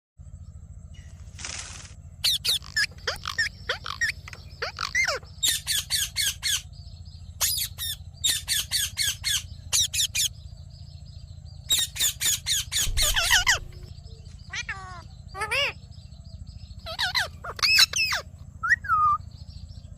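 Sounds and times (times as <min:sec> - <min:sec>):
steady low hum: 0:00.2 - 0:19.9
parrot shrill calls: 0:02.2 - 0:06.7, 0:07.4 - 0:10.3, 0:11.7 - 0:15.8, 0:16.8 - 0:19.2.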